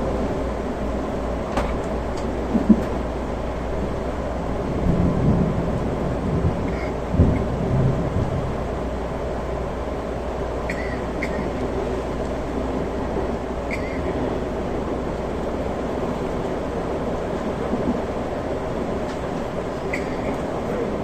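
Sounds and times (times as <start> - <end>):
train running rumble: 0.0 - 21.0.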